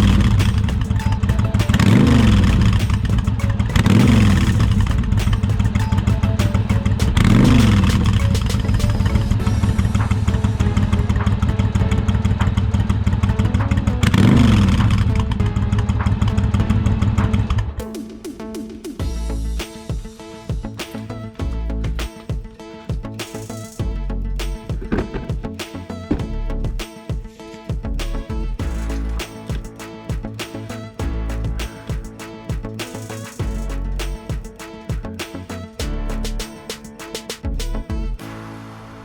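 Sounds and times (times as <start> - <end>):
motorcycle engine idling and revving: 0.0 - 17.8.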